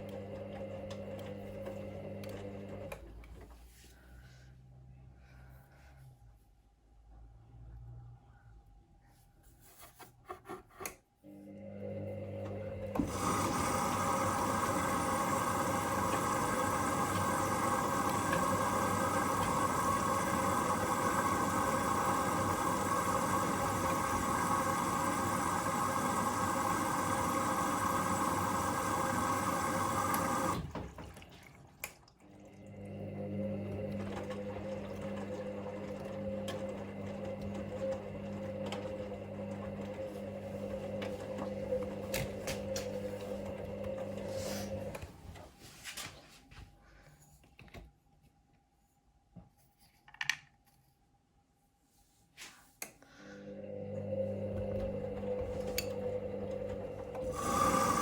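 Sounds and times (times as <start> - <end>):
washing machine hum: 0.0 - 4.4, 11.2 - 47.0, 53.1 - 58.0
water rushing into machine: 12.4 - 45.0, 53.6 - 58.0.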